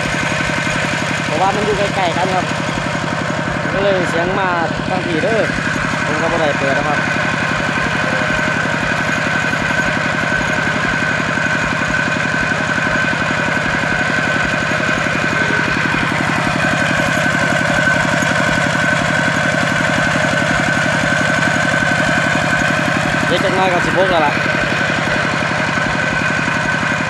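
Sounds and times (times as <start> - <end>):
motor engine chugging: 0.0 - 27.0.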